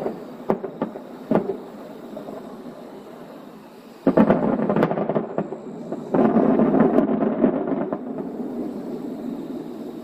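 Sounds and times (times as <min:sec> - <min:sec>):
fireworks booming: 0:00.0 - 0:10.0
fireworks crackling: 0:00.0 - 0:10.0.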